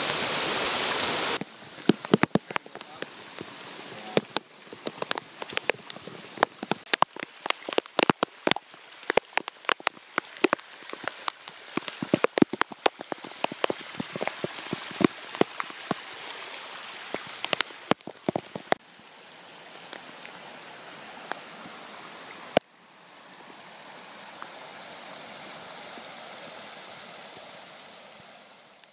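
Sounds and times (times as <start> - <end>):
heavy rain spattering: 0.0 - 18.8
floodwater rushing: 0.0 - 28.9.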